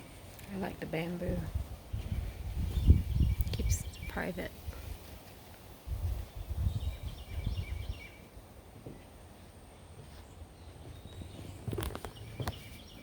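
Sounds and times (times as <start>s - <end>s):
wind rumbling on microphone: 0.0s - 8.6s, 10.4s - 13.0s
faint bird chirps: 6.6s - 8.3s.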